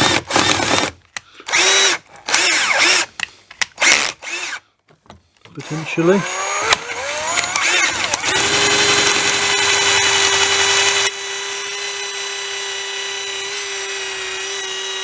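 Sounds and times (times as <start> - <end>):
electric drill whining: 1.5 - 3.1, 3.8 - 4.6, 5.6 - 15.0.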